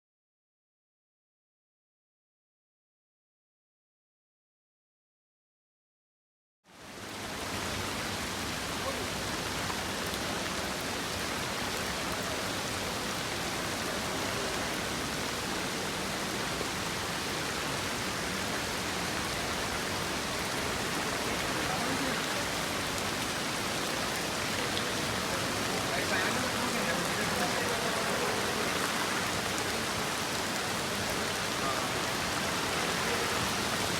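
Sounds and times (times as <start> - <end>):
heavy rain pouring: 6.8 - 33.9.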